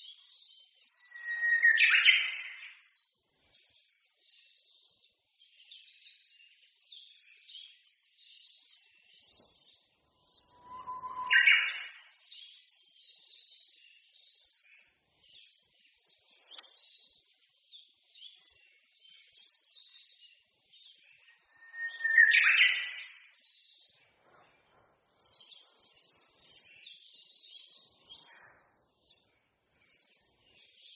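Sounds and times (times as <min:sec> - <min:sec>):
songbirds twittering: 0:00.0 - 0:30.9
close bird whistling with flourish: 0:01.1 - 0:02.6, 0:10.4 - 0:12.2, 0:21.5 - 0:23.1.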